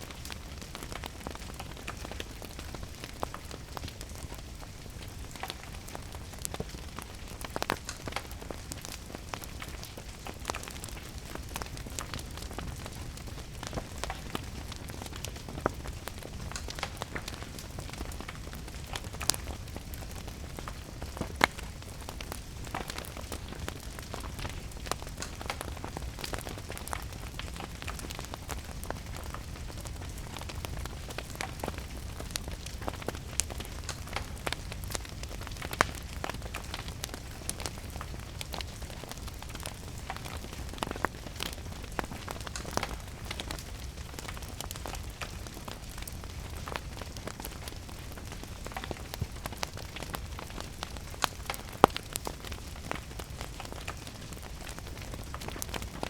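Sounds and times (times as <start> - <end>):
steady rain: 0.0 - 56.0
wood fire crackling: 0.0 - 56.0.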